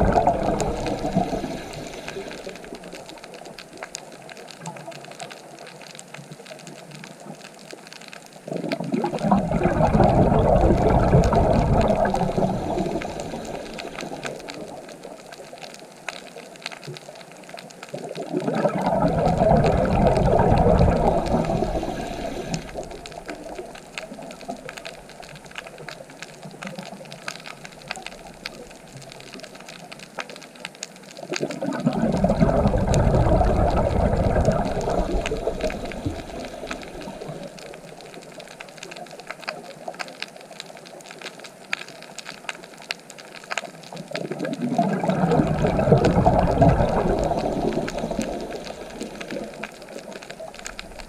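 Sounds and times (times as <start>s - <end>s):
sea waves breaking: 0.0s - 3.6s, 8.7s - 15.1s, 18.3s - 25.1s, 31.3s - 37.9s, 44.6s - 51.0s
surf washing: 0.0s - 3.8s, 8.5s - 15.2s, 18.1s - 25.8s, 31.3s - 38.1s, 44.2s - 51.0s.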